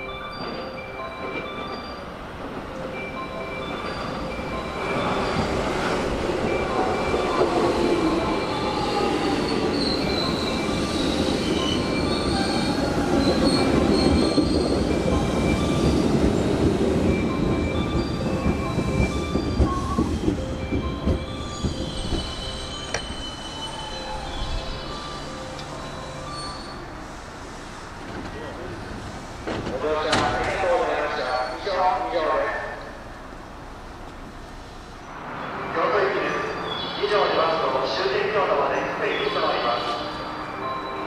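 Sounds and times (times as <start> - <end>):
train wheels rumbling on rails: 3.6 - 31.1.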